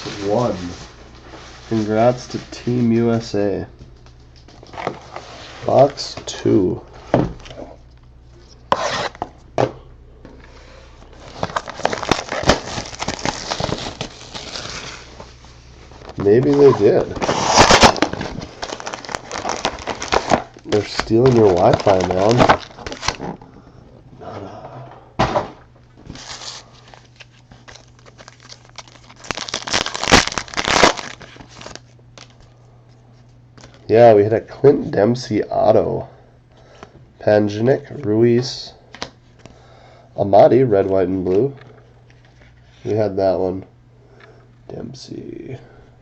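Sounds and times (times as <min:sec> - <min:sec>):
plastic wrapping tearing and crinkling: 0:11.1 - 0:23.4, 0:26.1 - 0:32.4.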